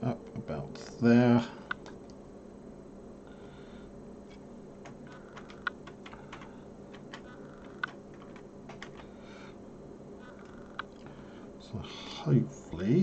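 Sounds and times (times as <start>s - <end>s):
faint steady hum: 0.0s - 13.0s
plastic keyboard parts clicking: 4.8s - 9.0s.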